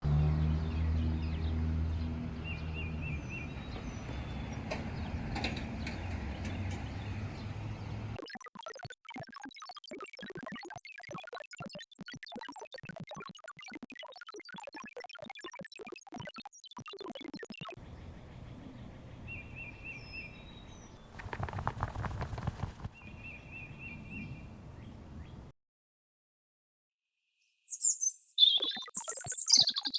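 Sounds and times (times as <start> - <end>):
low outdoor rumble: 0.0 - 8.2, 17.8 - 25.5
bird calls: 0.1 - 8.2, 17.8 - 25.5, 27.7 - 29.9
low hum: 17.8 - 25.5
rustling crackling noise: 20.3 - 25.5.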